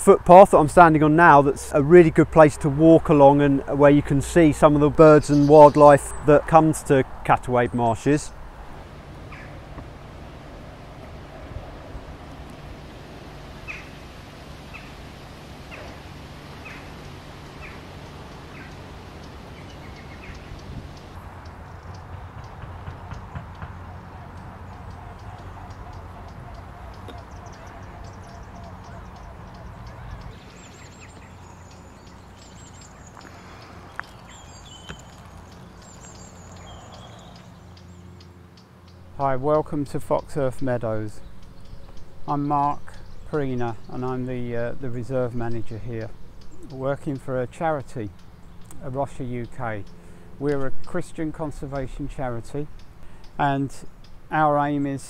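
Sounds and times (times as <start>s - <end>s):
bird calling: 7.7s - 39.2s
low steady hum: 8.3s - 22.6s.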